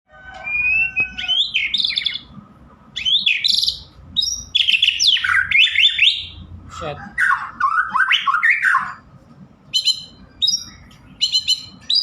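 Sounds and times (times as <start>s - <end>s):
bird singing trills and whistles: 0.4s - 2.3s, 3.0s - 6.4s, 7.2s - 9.0s, 9.7s - 12.0s.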